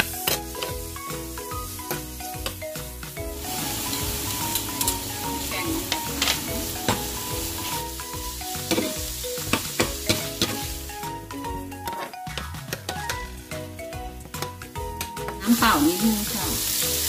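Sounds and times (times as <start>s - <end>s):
chicken sizzling in a frying pan: 0.0s - 2.6s, 3.2s - 11.2s, 15.4s - 17.0s
soft background music: 0.0s - 17.0s.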